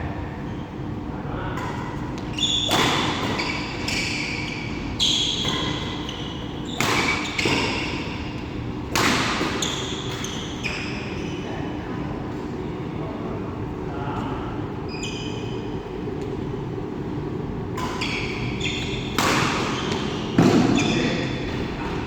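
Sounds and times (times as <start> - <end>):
shoe squeaks on court floor: 2.3 - 8.2, 9.5 - 11.6, 14.9 - 15.7, 18.0 - 21.4
racket hitting shuttlecock: 2.6 - 4.1, 5.3 - 8.2, 8.9 - 10.3, 19.1 - 20.8.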